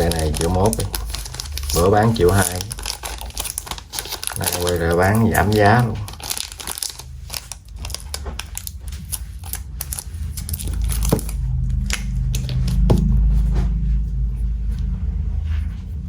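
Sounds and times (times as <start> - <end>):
low rumble of handling: 0.0 - 16.0.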